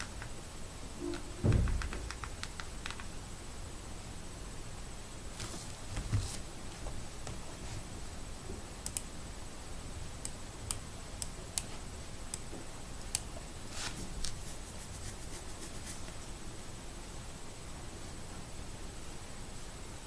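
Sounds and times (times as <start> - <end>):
background hiss: 0.0 - 20.0
faint high whine: 0.7 - 2.6
sharp clicks and ticks: 1.1 - 3.2, 8.9 - 9.1.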